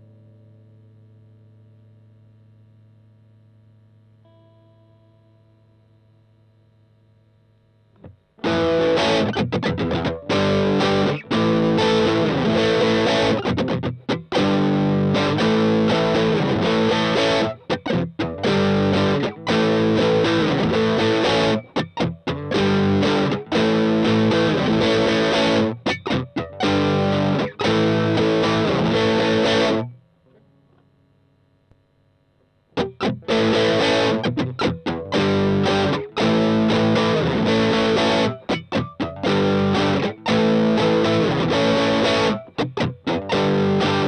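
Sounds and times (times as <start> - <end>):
distorted electric guitar riff: 7.8 - 30.5, 32.5 - 44.0.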